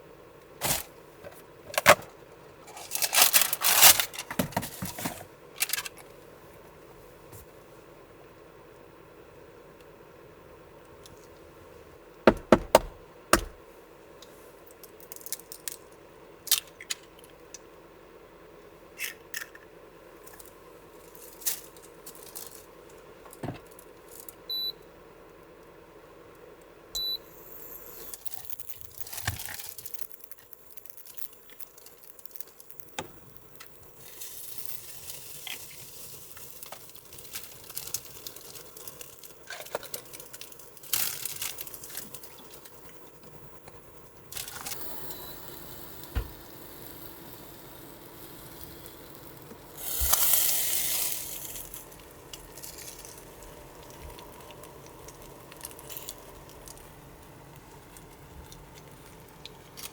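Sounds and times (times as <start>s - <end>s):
steady hum: 11.5s - 13.7s, 40.6s - 59.9s
short high electronic beeps: 27.0s - 28.1s, 44.6s - 47.4s
small objects clicking and knocking: 27.5s - 43.0s, 43.7s - 56.9s.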